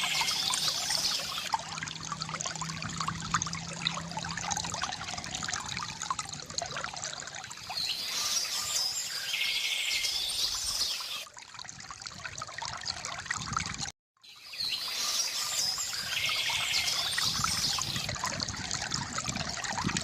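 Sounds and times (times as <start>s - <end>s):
birds chirping and trilling: 0.0s - 1.5s, 7.6s - 11.2s, 14.3s - 18.1s
fountain water trickling and splashing: 0.0s - 20.0s.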